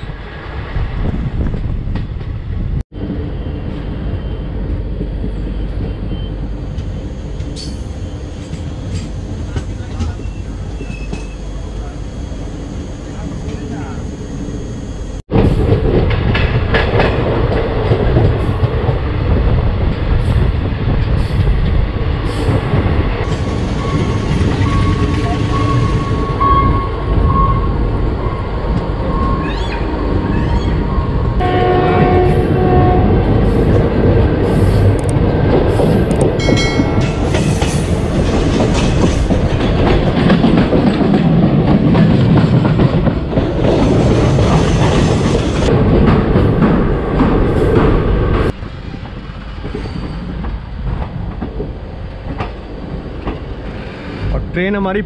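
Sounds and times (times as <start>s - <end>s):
train wheels clacking on rails: 5.0s - 11.5s, 15.3s - 19.2s, 31.5s - 54.3s
train horn: 31.4s - 33.3s.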